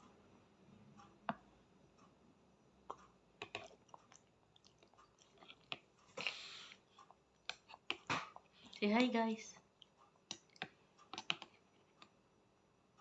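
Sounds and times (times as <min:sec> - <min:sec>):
child chewing with wet clicks: 0:02.8 - 0:08.9, 0:09.6 - 0:12.2.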